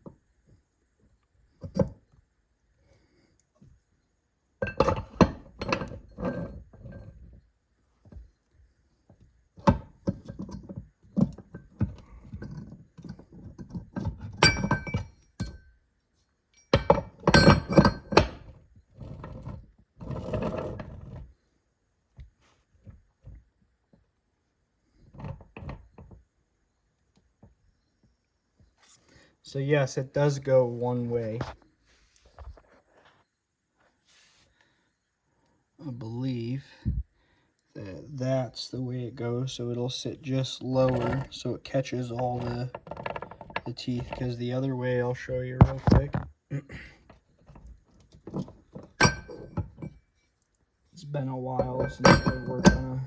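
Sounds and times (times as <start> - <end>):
metal gear parts clunking: 48.3 - 50.0, 51.6 - 53.0.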